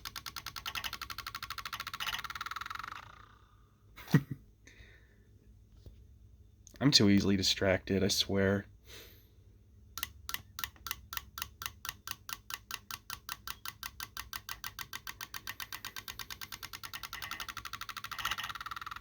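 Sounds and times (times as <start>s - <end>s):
small object rattling on laptop: 0.0s - 3.6s, 10.0s - 19.0s.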